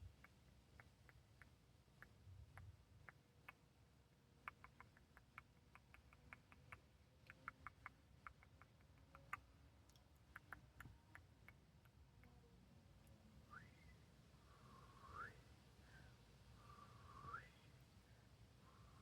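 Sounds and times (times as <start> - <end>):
fingernail clicks and ticks: 4.4 - 12.4.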